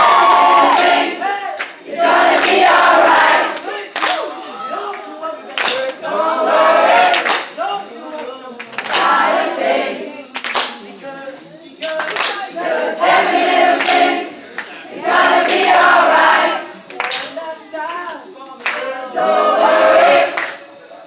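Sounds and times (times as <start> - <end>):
crowd singing in unison: 0.0 - 21.0
hand claps keeping time: 4.0 - 4.3, 4.9 - 6.0, 7.1 - 7.6, 10.4 - 11.0, 11.8 - 12.5, 13.8 - 17.4.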